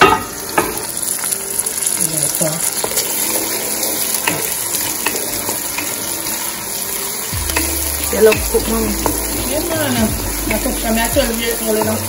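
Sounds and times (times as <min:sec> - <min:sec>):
vegetables sizzling in hot oil: 0:00.0 - 0:12.0
wooden spoon stirring and scraping: 0:07.5 - 0:12.0.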